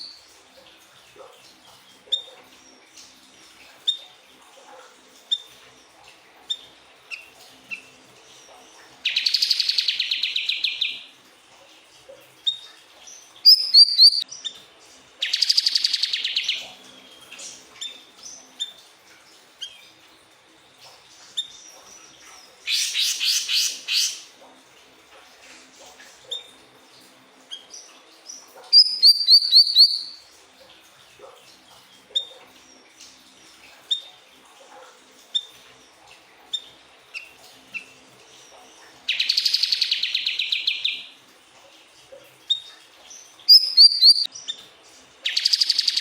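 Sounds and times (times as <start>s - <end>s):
bird chirping: 9.0s - 11.0s, 13.4s - 14.5s, 15.2s - 16.7s, 21.4s - 24.2s, 27.6s - 30.2s, 39.1s - 41.0s, 43.1s - 44.6s, 45.2s - 46.0s.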